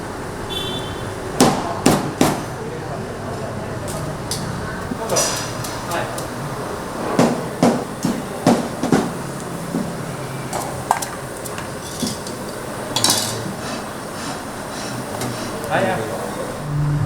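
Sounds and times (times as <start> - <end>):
utensils and dishes clattering: 3.9 - 16.1.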